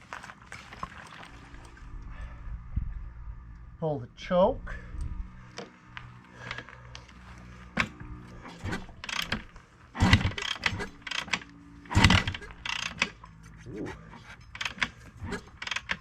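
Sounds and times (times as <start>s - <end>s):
dirt bike kick-start clatter: 6.4s - 13.2s, 14.2s - 16.0s.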